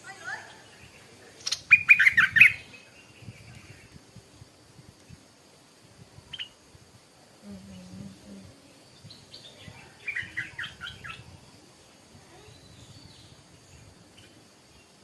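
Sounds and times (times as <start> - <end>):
bird singing: 0.0 - 4.0, 7.6 - 15.0.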